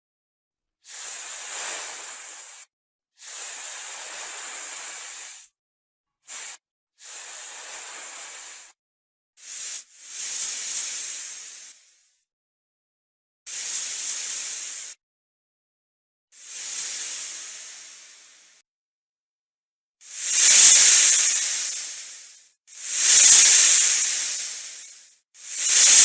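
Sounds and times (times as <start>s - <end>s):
snake hissing: 0.9s - 5.5s, 6.3s - 8.7s, 9.4s - 12.0s, 13.5s - 15.0s, 16.4s - 18.6s, 20.0s - 26.0s.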